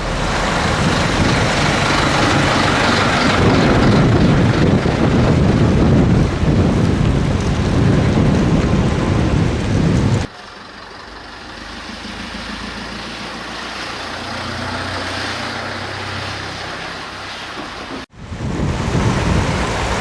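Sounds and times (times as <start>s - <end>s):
wind rumble on microphone: 0.0s - 10.3s, 12.0s - 20.0s
truck engine running: 0.0s - 18.1s.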